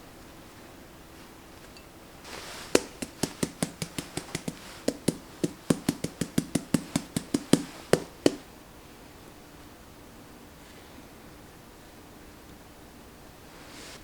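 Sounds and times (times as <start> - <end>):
knife chopping on cutting board: 2.7 - 8.4.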